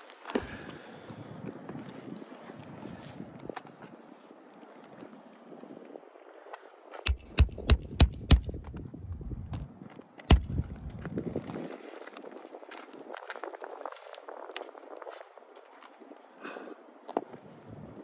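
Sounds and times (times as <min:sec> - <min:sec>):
sharp knocks: 0:07.1 - 0:08.8, 0:10.3 - 0:10.9.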